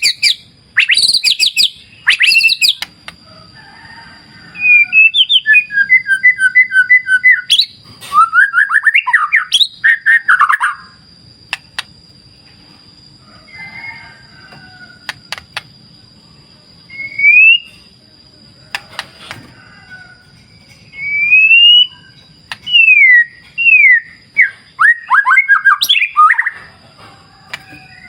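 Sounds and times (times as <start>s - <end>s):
songbird whistling: 0.0s - 3.0s, 4.5s - 11.0s, 16.8s - 17.9s, 20.7s - 26.6s
sharp clicks: 11.5s - 11.9s, 15.1s - 15.7s.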